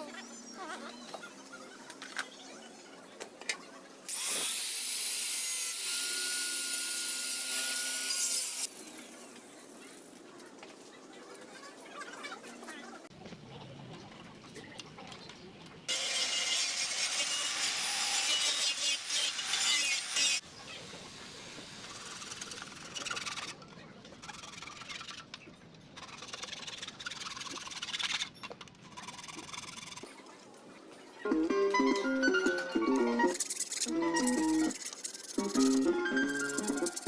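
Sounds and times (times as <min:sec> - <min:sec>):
hand tool rasping and scraping: 0:33.3 - 0:37.0.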